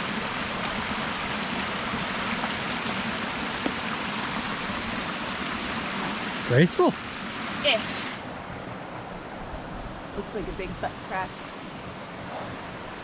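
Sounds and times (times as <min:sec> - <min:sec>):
creek water rushing over cascade: 0:00.0 - 0:08.8, 0:09.6 - 0:13.0.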